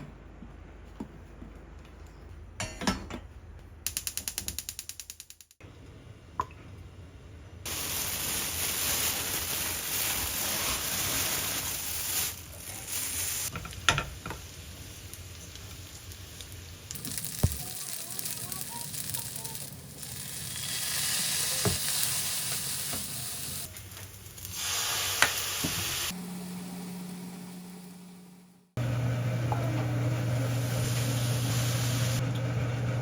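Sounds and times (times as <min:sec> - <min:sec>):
food sizzling in a frying pan: 0:07.7 - 0:27.6, 0:30.1 - 0:32.2.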